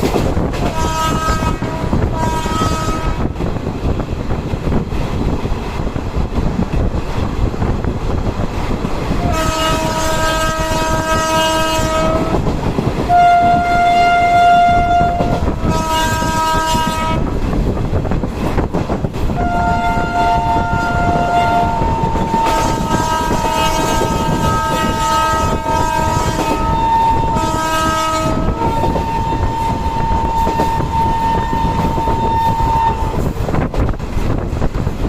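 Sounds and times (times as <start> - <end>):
train rumble and rail clatter: 0.0 - 35.0
train horn blasts: 0.6 - 3.4, 9.2 - 12.5, 13.1 - 17.4, 19.3 - 33.3.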